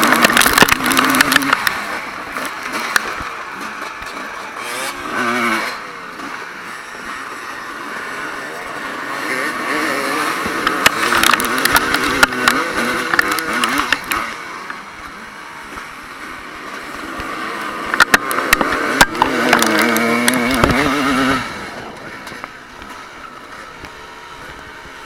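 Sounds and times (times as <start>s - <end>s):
sharp clicks and knocks: 0.0s - 4.5s, 10.2s - 14.8s, 16.7s - 24.0s
motorcycle engines revving: 0.0s - 25.0s.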